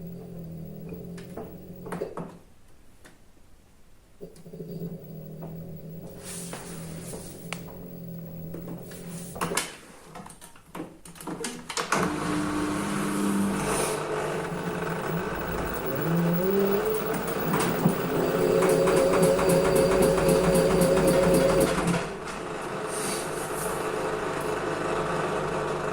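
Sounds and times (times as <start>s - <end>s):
washing machine motor hum: 0.0s - 2.3s, 4.4s - 9.7s, 11.9s - 25.9s
wash drum whirring: 11.9s - 25.9s.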